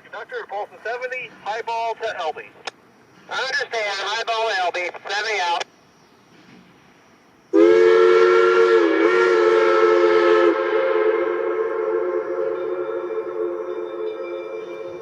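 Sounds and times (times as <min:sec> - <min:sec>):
rushing steam: 0:06.3 - 0:14.9
steam locomotive whistle: 0:07.5 - 0:15.0.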